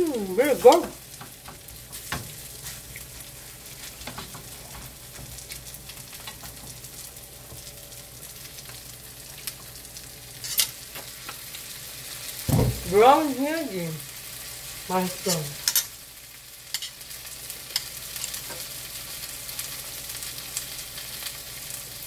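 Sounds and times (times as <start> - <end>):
batter sizzling in a pan: 0.0 - 22.0
brief thump: 12.5 - 12.8.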